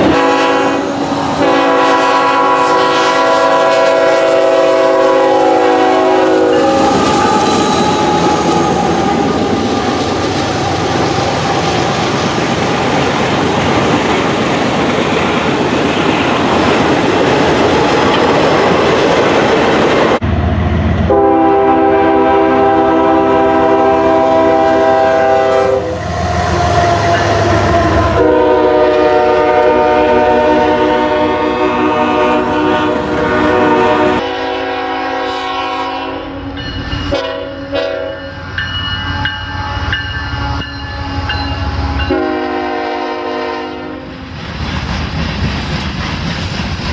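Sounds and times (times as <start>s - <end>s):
locomotive air horn: 0.0s - 8.5s, 21.1s - 38.4s, 39.0s - 44.3s
train wheels rumbling and clattering: 5.8s - 21.2s, 24.2s - 34.2s, 38.3s - 46.9s.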